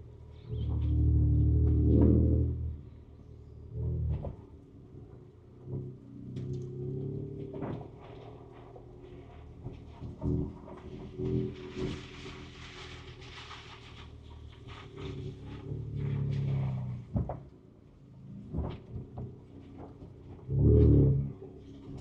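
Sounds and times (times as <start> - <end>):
truck knocks and clunks: 7.2 - 12.1, 16.5 - 17.8, 18.4 - 22.0.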